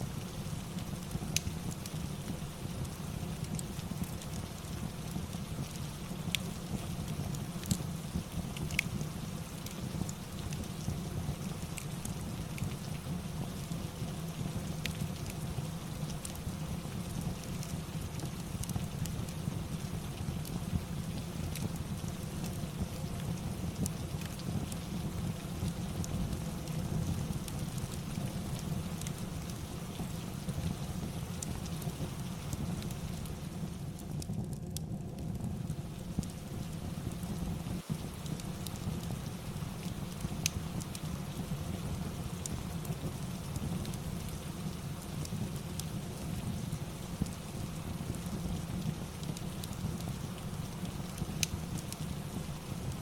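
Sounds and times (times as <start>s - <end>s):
steady rain: 0.0s - 53.0s
wood fire crackling: 0.0s - 53.0s.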